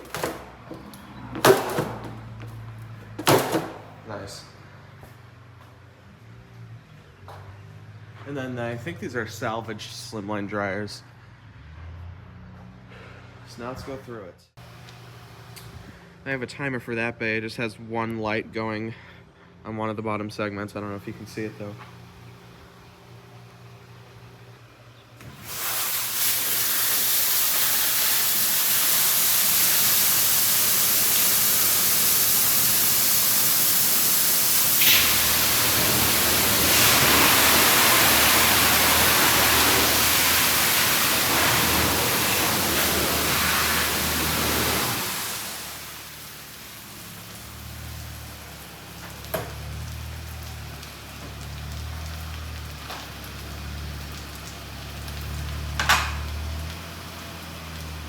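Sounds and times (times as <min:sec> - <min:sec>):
water spray hissing: 0:25.3 - 0:52.4.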